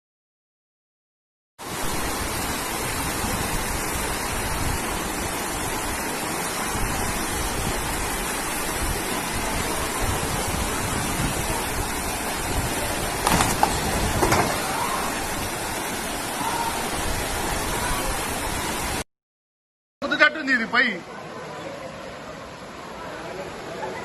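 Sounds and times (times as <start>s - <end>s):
floodwater rushing: 1.6s - 19.0s
wind buffeting microphone: 8.8s - 15.7s.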